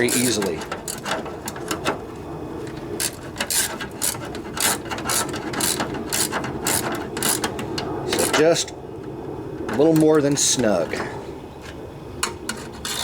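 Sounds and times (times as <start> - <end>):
ratchet wrench clicking: 3.0 - 7.5.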